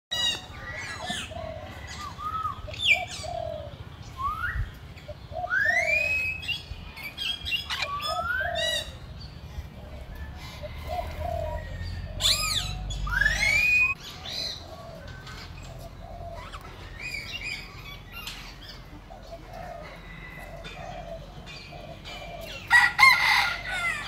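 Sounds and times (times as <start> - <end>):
birds calling and chirping: 0.1 - 24.0
whistled bird calls: 4.1 - 8.9, 12.3 - 14.0.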